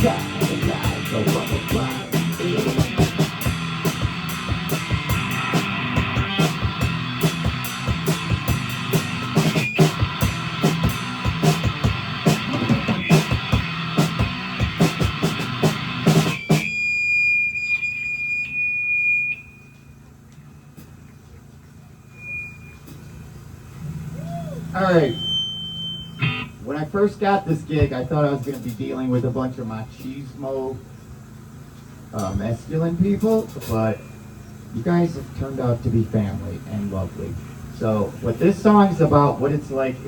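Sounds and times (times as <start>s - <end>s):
electric guitar: 0.0s - 16.7s, 26.2s - 26.6s
live rock band playing: 0.0s - 16.7s
drums: 0.0s - 16.9s, 27.5s - 30.4s, 31.4s - 34.1s
high held tone: 0.0s - 20.5s, 21.9s - 30.8s.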